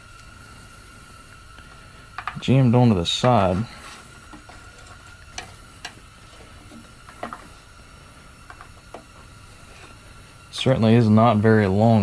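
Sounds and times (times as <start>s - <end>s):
faint hum: 0.0s - 12.0s
small parts clicking and tapping: 1.6s - 2.5s, 4.3s - 7.6s, 8.4s - 9.2s.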